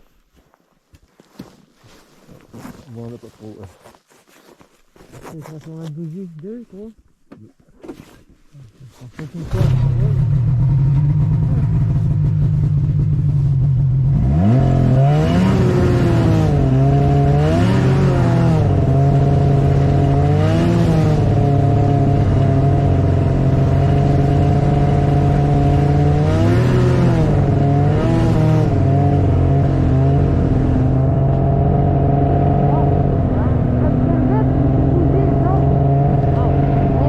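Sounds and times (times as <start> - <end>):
snowmobile engine revving: 8.6 - 37.0.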